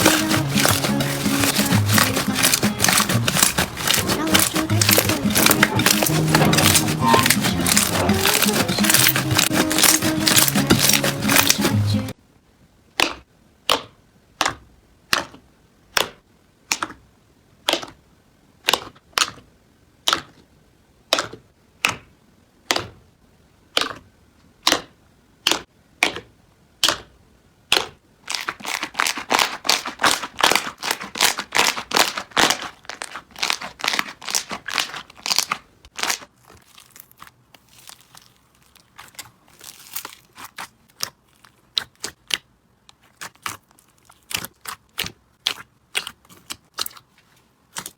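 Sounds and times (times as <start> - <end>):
slime popping and crackling: 0.0 - 12.1, 27.7 - 47.9.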